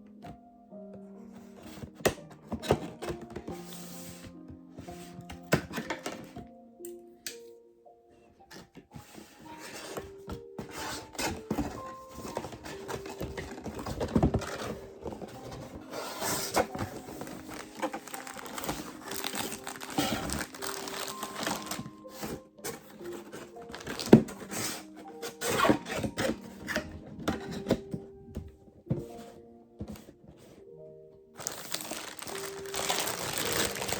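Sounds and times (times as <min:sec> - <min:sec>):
soft background music: 0:00.0 - 0:33.9
packaging crinkling and tearing: 0:11.2 - 0:22.4, 0:23.0 - 0:24.6, 0:31.4 - 0:33.9.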